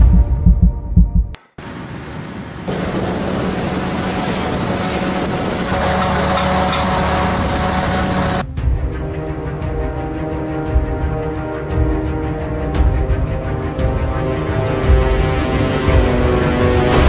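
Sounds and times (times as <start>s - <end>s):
faint engine whine: 1.3s - 8.4s
jet engine rush: 1.4s - 8.4s.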